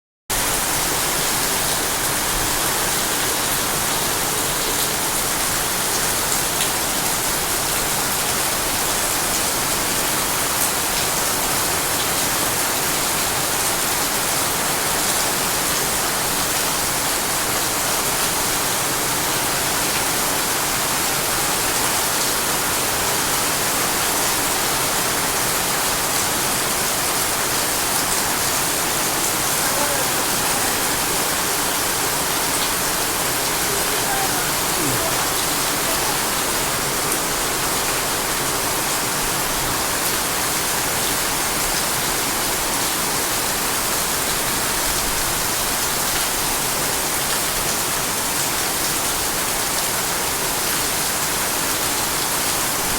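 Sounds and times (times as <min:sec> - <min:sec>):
heavy rain hissing: 0:11.8 - 0:42.8.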